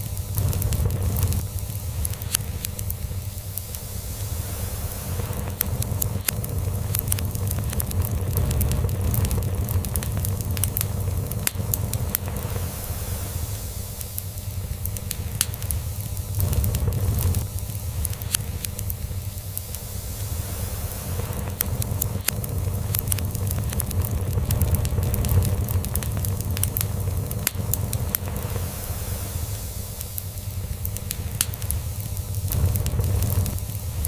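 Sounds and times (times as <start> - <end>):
log fire crackling: 0.0 - 34.0.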